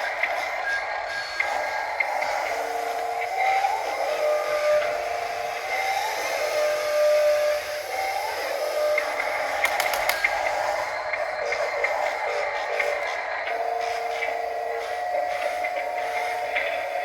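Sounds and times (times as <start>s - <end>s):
electric motors whining: 0.0s - 17.0s
sharp clicks: 9.6s - 10.4s.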